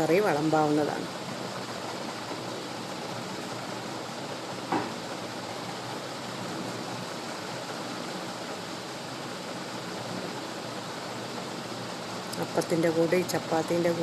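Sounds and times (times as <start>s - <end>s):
background hiss: 0.0s - 14.0s
short knock: 4.7s - 5.0s.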